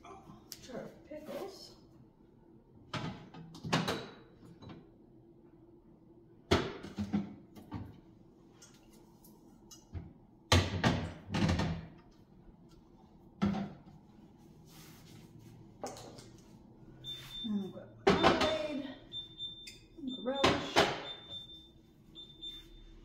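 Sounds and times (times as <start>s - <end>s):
jars and bottles clunking on shelves: 2.9s - 4.8s, 6.5s - 8.0s, 9.9s - 12.0s, 13.4s - 13.9s, 18.0s - 18.8s, 20.4s - 21.2s.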